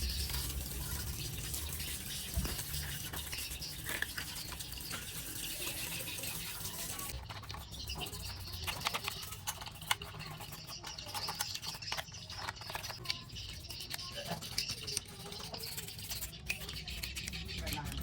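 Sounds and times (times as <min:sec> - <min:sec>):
clicks taps and scrapes on parts: 0:08.2 - 0:15.1.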